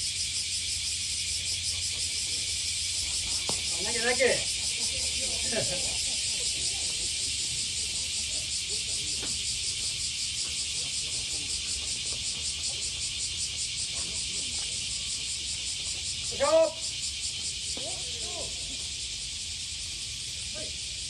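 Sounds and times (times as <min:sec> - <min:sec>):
cicadas buzzing: 0:00.0 - 0:21.0
faint distant voices: 0:01.5 - 0:16.8.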